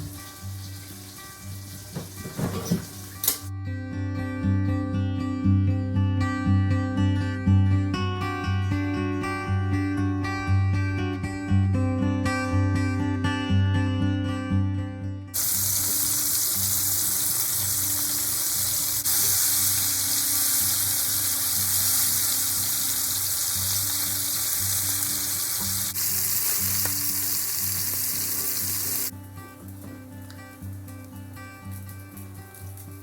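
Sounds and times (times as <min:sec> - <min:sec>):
food sizzling in a pan: 0:00.0 - 0:03.5, 0:15.4 - 0:33.0
quiet music: 0:00.0 - 0:33.0.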